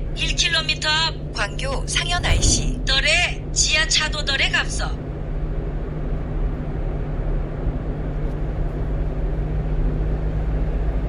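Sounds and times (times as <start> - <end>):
road noise: 0.0 - 11.0
truck engine hum: 0.0 - 11.0.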